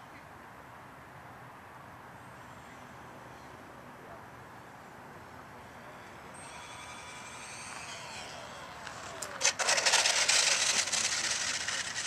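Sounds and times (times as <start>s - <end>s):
model jet engines whining: 5.2s - 12.0s
rushing fluttering noise: 6.1s - 12.0s.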